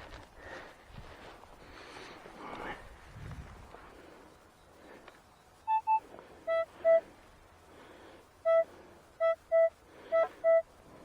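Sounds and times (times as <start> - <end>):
metal detector beeping: 5.7 - 7.0.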